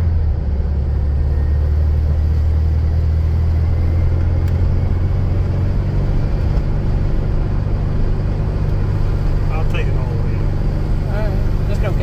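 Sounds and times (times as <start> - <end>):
car engine low drone: 0.0 - 12.0.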